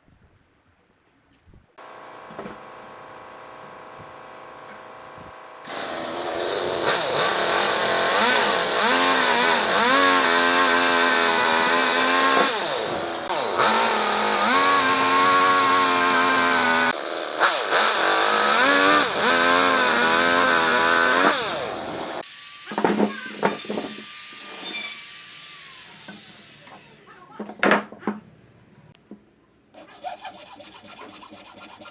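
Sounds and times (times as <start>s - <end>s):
chainsaw cutting wood: 3.4s - 26.9s.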